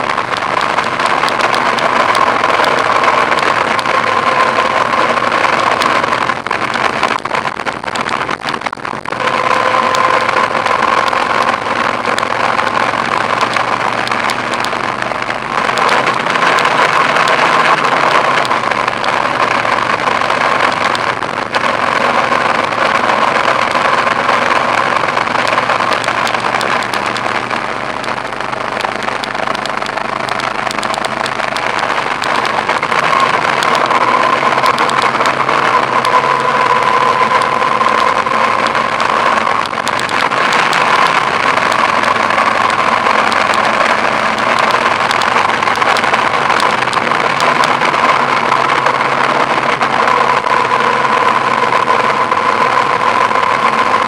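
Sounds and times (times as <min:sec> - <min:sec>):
car engine: 0:00.0 - 0:54.0
road noise: 0:00.0 - 0:54.0.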